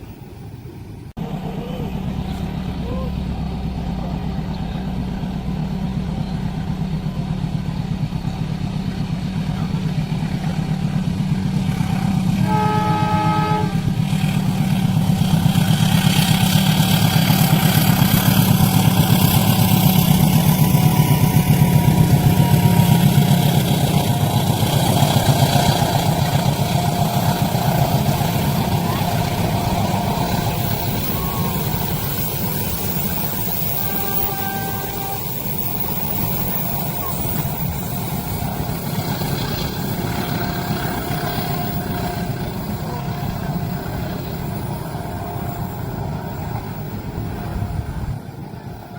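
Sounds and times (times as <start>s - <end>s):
train engine drone: 0.0s - 48.9s
train running noise: 0.0s - 48.9s
train horn blast: 11.8s - 14.5s, 19.0s - 48.1s.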